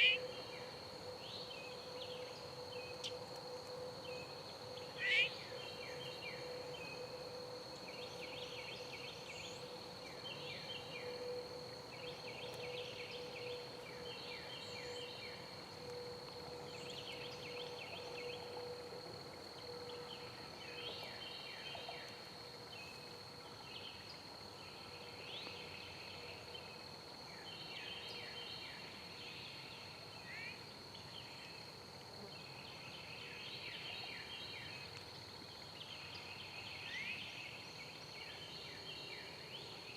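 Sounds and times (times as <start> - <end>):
steady high-pitched whine: 0.0 - 31.8.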